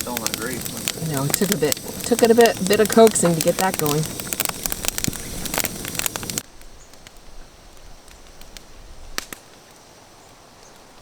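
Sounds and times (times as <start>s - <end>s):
scattered clicks: 0.0s - 6.4s
campfire crackling: 0.0s - 11.0s.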